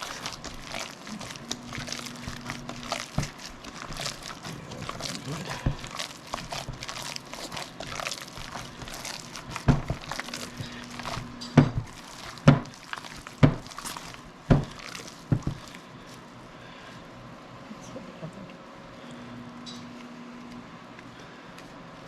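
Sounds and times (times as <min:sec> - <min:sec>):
wet meat squishing: 0:00.0 - 0:16.6.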